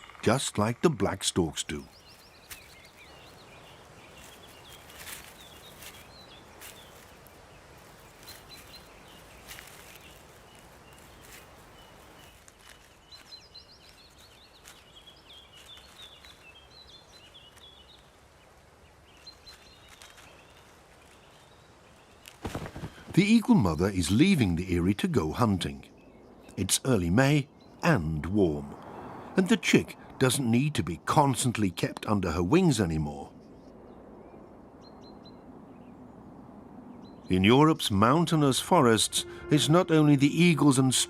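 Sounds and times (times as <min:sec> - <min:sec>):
songbirds chirping and twittering: 0:00.0 - 0:41.0.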